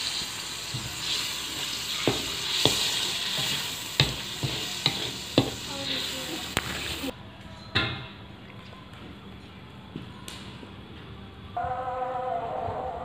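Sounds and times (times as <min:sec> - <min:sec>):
spice paste sizzling in a wok: 0:00.0 - 0:07.1.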